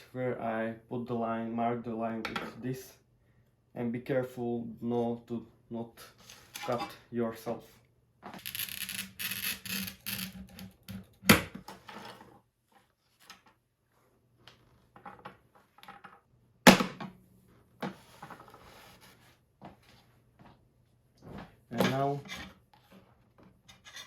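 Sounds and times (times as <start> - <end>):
glass scraping and rubbing: 6.3 - 6.9, 8.4 - 10.9.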